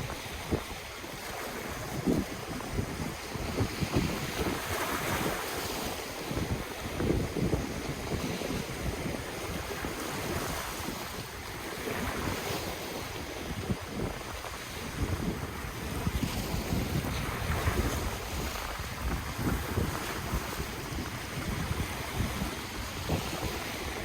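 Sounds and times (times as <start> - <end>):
ocean waves washing: 0.0 - 24.0
wind gusting against microphone: 0.0 - 24.0.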